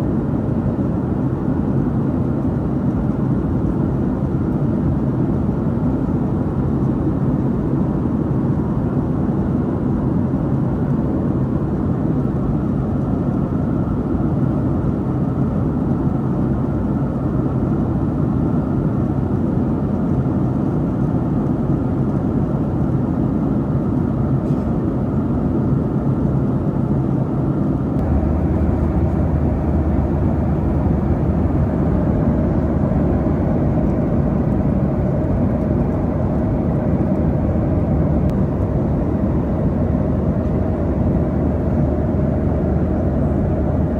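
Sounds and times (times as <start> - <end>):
jet engine and airflow drone: 0.0 - 43.9
deep steady hum: 28.0 - 43.9.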